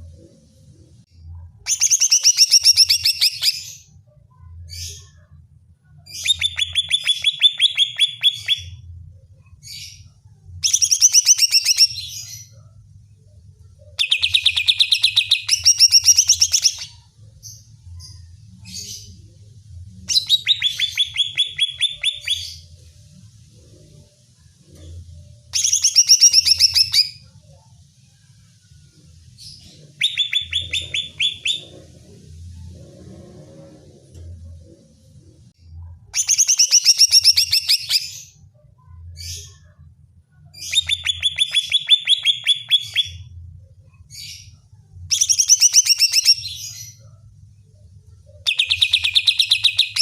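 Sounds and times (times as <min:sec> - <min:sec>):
bird singing fast trills: 0:30.0 - 0:31.7.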